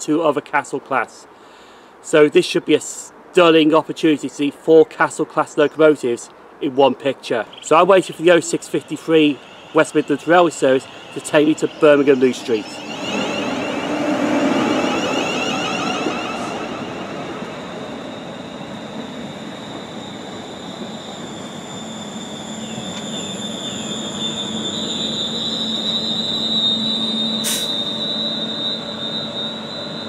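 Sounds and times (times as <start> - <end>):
electric train high whine: 7.5 - 30.0
wheel squeals: 7.5 - 30.0.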